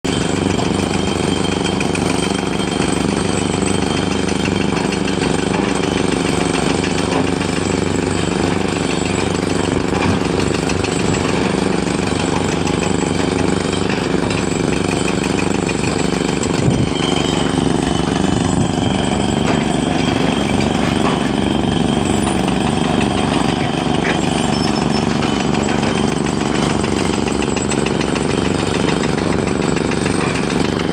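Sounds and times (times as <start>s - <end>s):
diesel engine running roughly: 0.0s - 30.9s.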